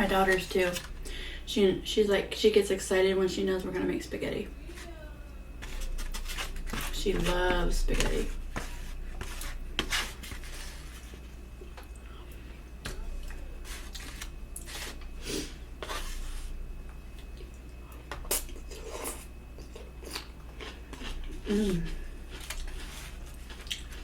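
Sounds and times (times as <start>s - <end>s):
wet chewing sounds: 17.2s - 24.0s.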